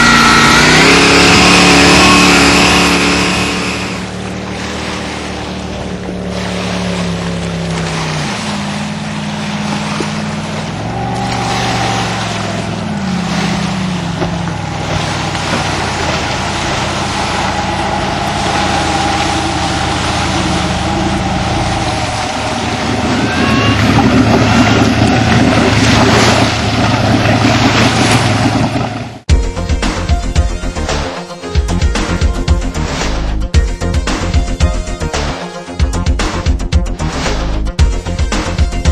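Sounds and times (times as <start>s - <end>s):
rushing water: 0.0s - 29.3s
boat engine running: 0.0s - 38.9s
wind noise: 14.6s - 29.2s.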